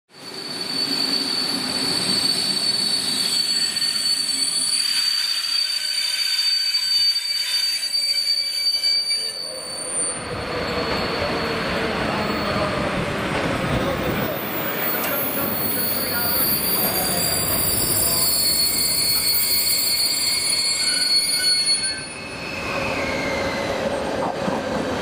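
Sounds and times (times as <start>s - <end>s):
wheel and brake squeal: 0.2s - 12.8s, 14.1s - 24.0s
train rumbling: 10.1s - 25.0s.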